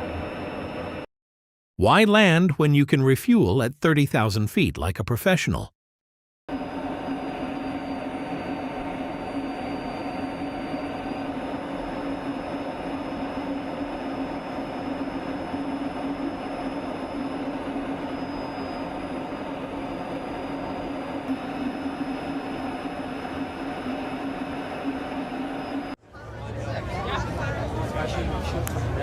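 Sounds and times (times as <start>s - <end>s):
aircraft engines droning: 0.0s - 1.1s, 6.5s - 29.0s
steady low hum: 6.5s - 26.0s.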